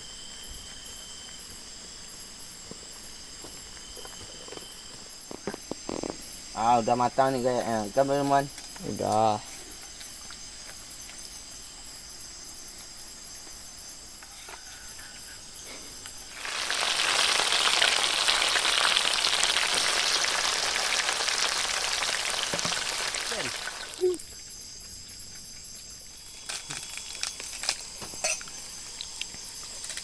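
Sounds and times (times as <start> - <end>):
food sizzling in hot oil: 16.1 - 24.2.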